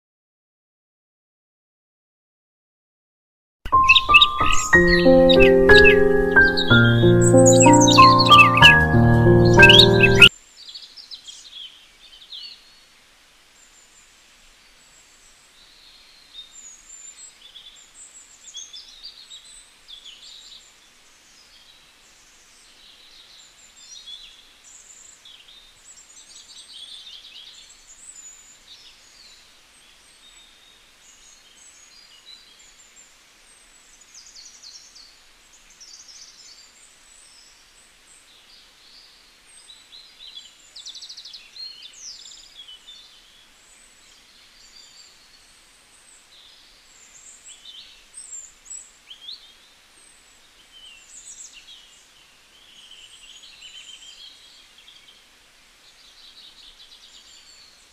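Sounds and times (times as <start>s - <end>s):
birds chirping: 3.7s - 10.3s.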